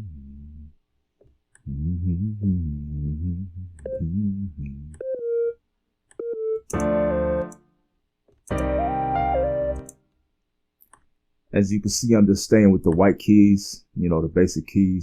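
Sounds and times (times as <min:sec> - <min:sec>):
square-wave synth melody: 0:06.2 - 0:07.6, 0:08.5 - 0:09.9.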